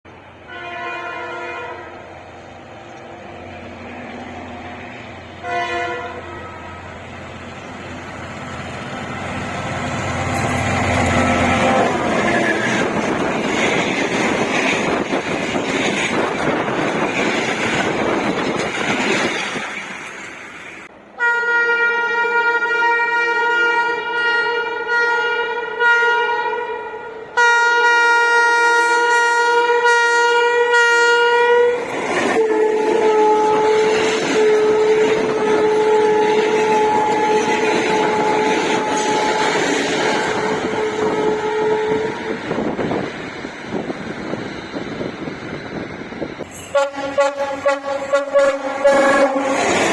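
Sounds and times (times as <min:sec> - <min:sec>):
train passing rumble: 0:00.1 - 0:25.0, 0:26.7 - 0:49.9
locomotive horn blasts: 0:00.4 - 0:02.1, 0:05.4 - 0:07.0, 0:10.1 - 0:13.0, 0:21.2 - 0:42.4, 0:46.6 - 0:49.8.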